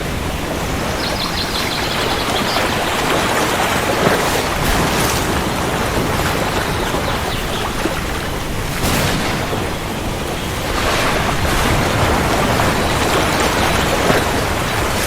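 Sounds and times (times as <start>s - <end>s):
heavy rain: 0.0s - 15.0s
thunder rumbling: 0.0s - 15.0s.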